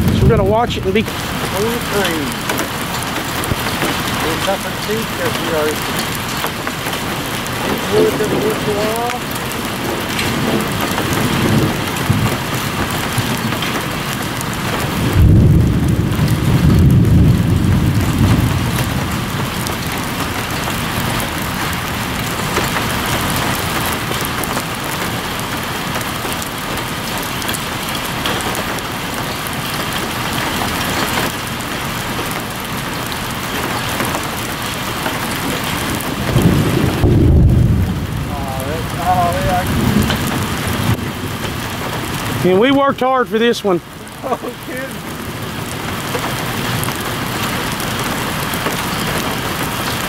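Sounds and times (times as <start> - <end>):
low rumble: 0.0 - 3.7, 35.7 - 42.5
rain hissing: 0.0 - 50.0.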